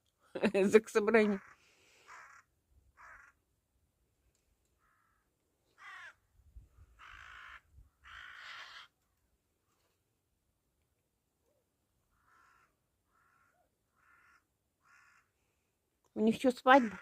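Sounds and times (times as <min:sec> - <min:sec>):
crows cawing: 0:01.4 - 0:03.4, 0:04.8 - 0:06.3, 0:07.0 - 0:09.0, 0:12.1 - 0:15.6, 0:16.7 - 0:17.0.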